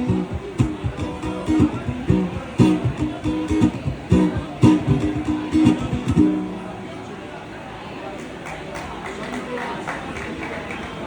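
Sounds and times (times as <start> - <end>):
guitar strumming: 0.0 - 7.5.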